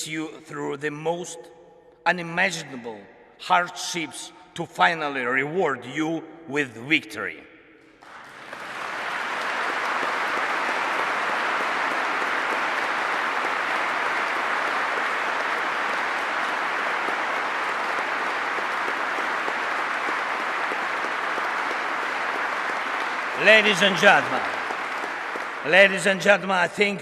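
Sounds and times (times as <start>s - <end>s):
large audience applauding: 8.0s - 27.0s.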